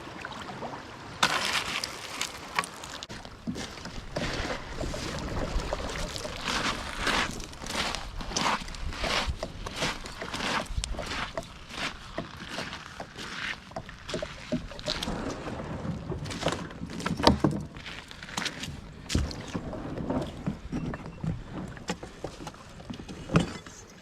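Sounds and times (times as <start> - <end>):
paddle splashing water: 0.0 - 23.9.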